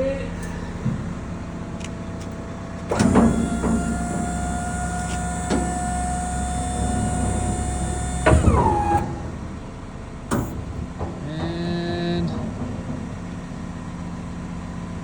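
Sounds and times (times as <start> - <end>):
hydraulic pump motor whining: 2.2 - 11.0
lift gate clunk: 2.2 - 13.2.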